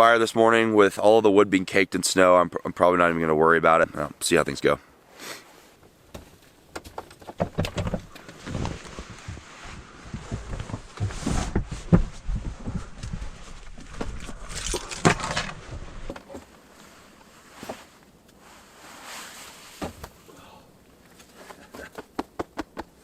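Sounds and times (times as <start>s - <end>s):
knocks and rustles of gear: 6.1s - 18.0s.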